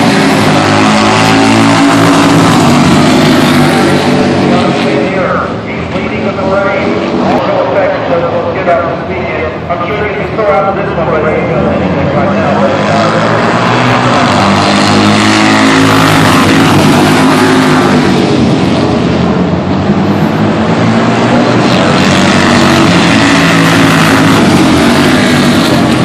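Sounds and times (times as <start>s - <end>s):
racing motorcycles passing: 0.0s - 26.0s.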